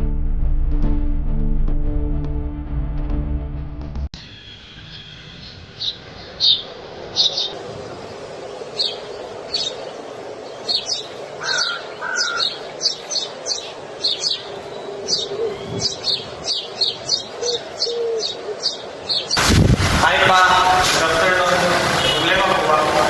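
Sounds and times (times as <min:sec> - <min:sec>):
small birds chirping: 0:04.2 - 0:19.4.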